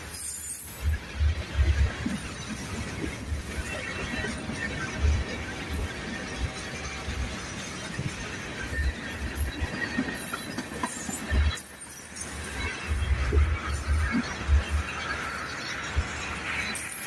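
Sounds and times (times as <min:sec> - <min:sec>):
freight train wheels clattering: 0:00.0 - 0:17.0.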